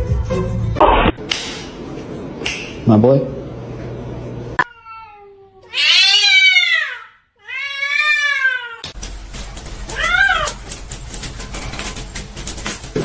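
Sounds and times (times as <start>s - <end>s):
cat meowing: 4.6s - 8.8s, 9.9s - 10.6s.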